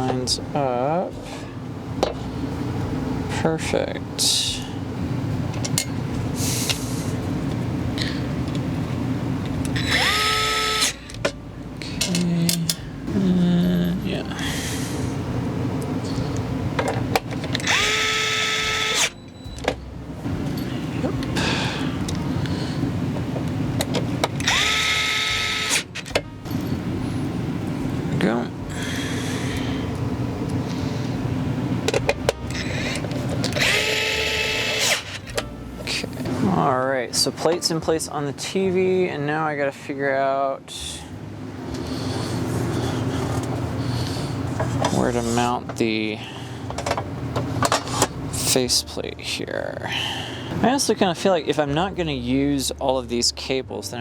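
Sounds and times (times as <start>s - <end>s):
electric screwdriver motor whining: 9.7s - 11.0s, 17.5s - 19.2s, 24.4s - 25.9s, 32.6s - 35.2s.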